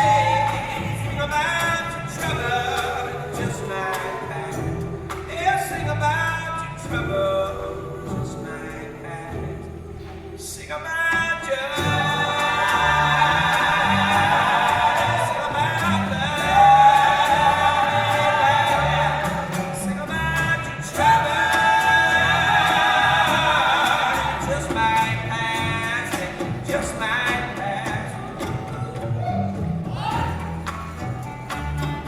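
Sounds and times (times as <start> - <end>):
people singing: 0.0 - 32.0
live band playing: 11.2 - 32.0.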